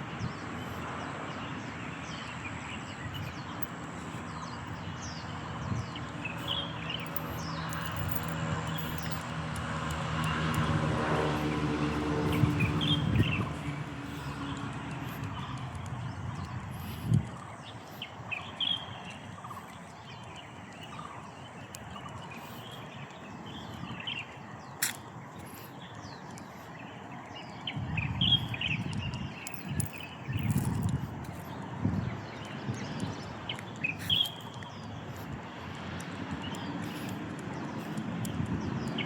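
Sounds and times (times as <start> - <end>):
birds chirping: 0.0 - 39.0
vehicle engine: 3.0 - 17.2.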